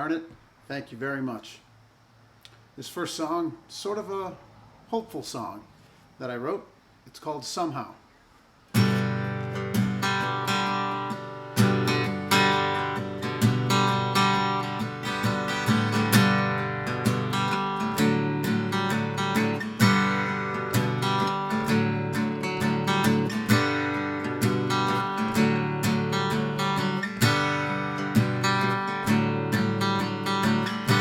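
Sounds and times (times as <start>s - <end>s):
acoustic guitar strumming: 8.7s - 31.0s.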